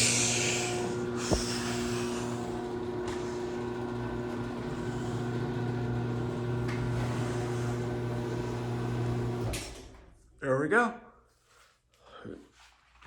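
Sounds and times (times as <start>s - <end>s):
garage door opener motor humming: 0.0s - 10.2s.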